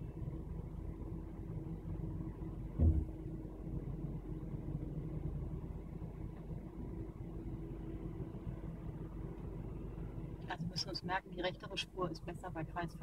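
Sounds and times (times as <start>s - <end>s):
car engine idling: 0.0s - 13.0s
low thump: 2.8s - 3.2s.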